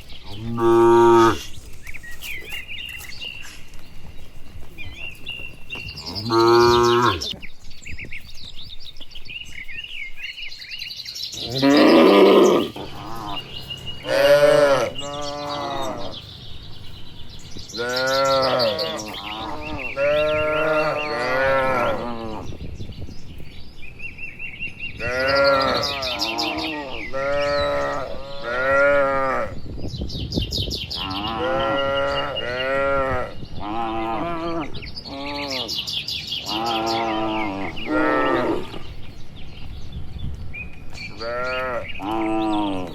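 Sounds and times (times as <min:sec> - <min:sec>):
cattle mooing: 0:00.3 - 0:01.5, 0:06.0 - 0:07.3, 0:11.4 - 0:16.2, 0:17.8 - 0:22.4, 0:36.4 - 0:38.9.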